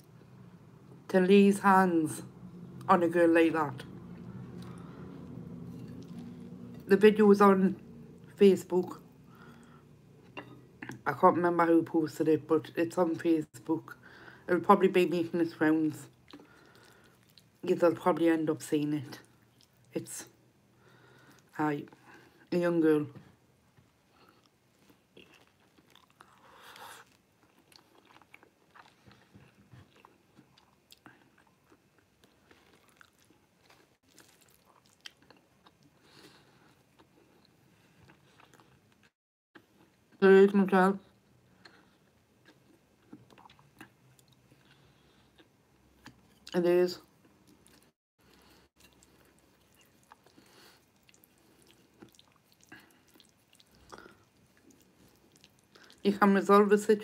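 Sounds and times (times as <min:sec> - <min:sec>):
person chewing noodles: 0:04.2 - 0:06.8, 0:16.1 - 0:17.6, 0:24.0 - 0:40.1, 0:41.2 - 0:46.5, 0:47.2 - 0:56.1.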